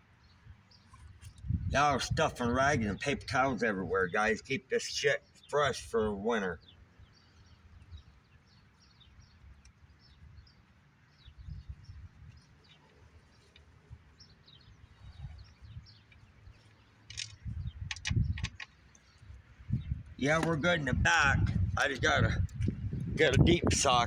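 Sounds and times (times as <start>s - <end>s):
birds chirping faintly: 0.0s - 24.0s
low rumbling handling noise: 15.8s - 24.0s
sharp clicks: 17.1s - 19.1s.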